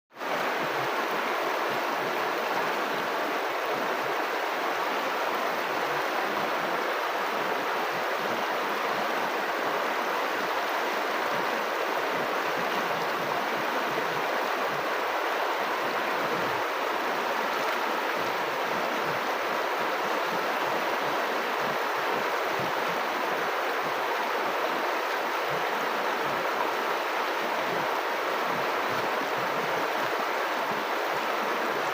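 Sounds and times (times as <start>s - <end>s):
river water flowing: 0.1s - 31.9s.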